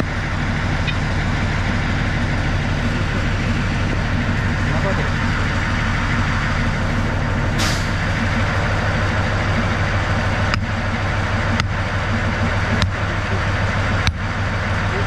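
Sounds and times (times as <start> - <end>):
diesel locomotive idling: 0.0 - 15.0
air hiss: 7.6 - 8.0
sharp clicks: 9.5 - 10.8.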